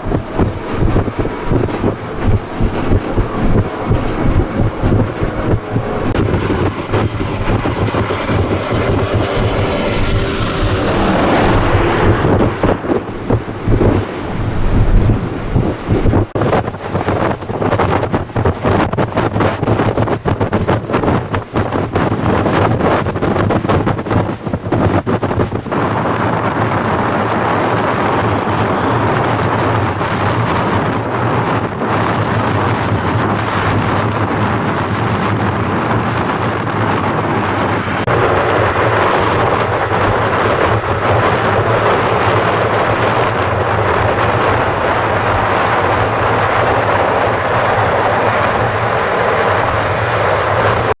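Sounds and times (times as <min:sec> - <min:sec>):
constant low hum: 0:00.0 - 0:18.9
blizzard wind blowing: 0:00.0 - 0:51.0.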